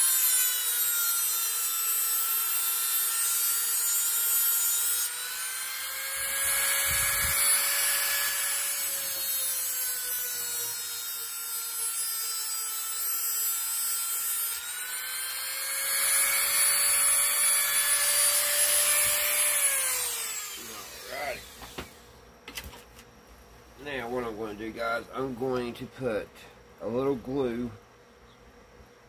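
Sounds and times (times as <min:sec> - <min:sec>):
motor winding down: 0:00.0 - 0:11.4, 0:13.6 - 0:22.1
cutting wheel whining and grinding: 0:04.2 - 0:10.9.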